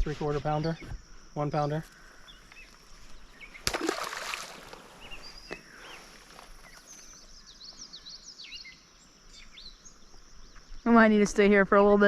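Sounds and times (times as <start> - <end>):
brief water splash: 3.6 - 4.8.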